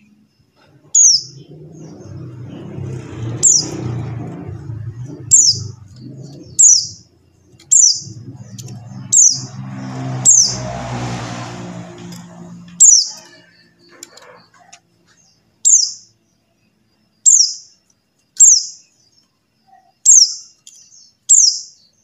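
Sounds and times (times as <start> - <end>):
low engine-like hum: 0.0 - 15.6.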